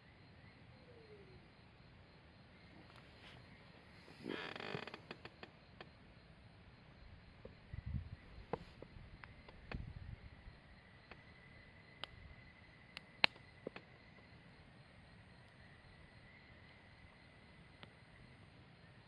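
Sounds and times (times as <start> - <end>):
campfire crackling: 9.1 - 18.7
fire popping: 12.9 - 13.9.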